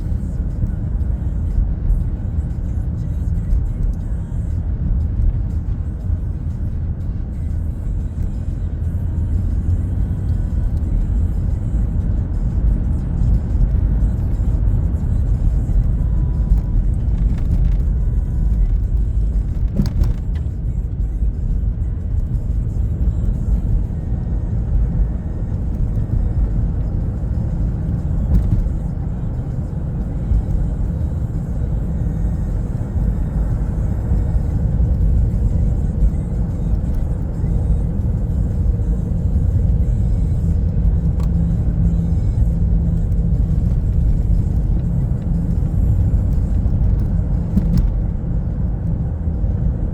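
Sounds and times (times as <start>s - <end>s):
car road and engine rumble: 0.0s - 49.9s.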